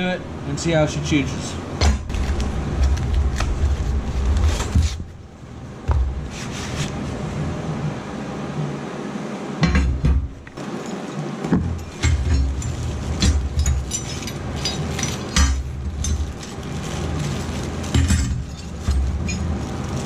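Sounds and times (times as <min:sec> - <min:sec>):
metal parts clattering: 0:10.6 - 0:20.0.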